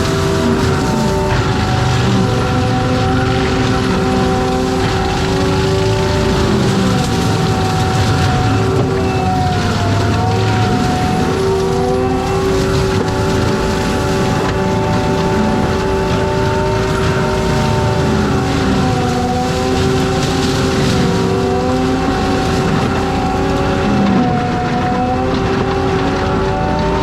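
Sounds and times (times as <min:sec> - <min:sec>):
forestry mulcher running: 0:00.0 - 0:27.0.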